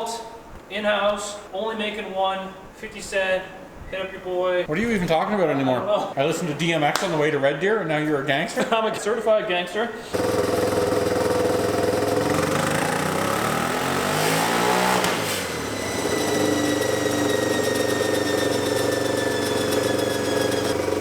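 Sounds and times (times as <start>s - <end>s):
engine running on dyno: 10.2s - 21.0s
thin high whine: 15.0s - 21.0s.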